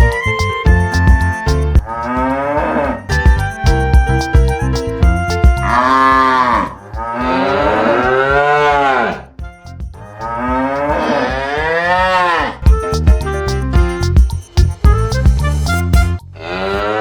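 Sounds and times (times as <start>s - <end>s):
background music: 0.0s - 16.4s
cow mooing: 5.7s - 9.2s.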